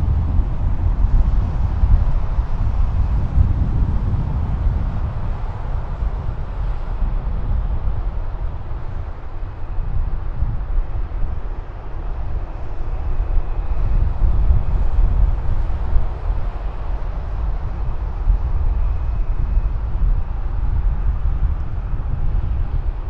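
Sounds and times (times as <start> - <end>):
faint high engine whine: 0.0 - 23.0
jet engines rumbling: 0.0 - 23.0.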